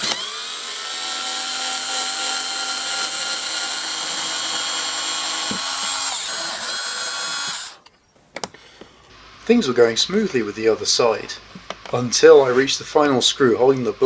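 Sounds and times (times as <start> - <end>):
power drill running: 0.0 - 7.8.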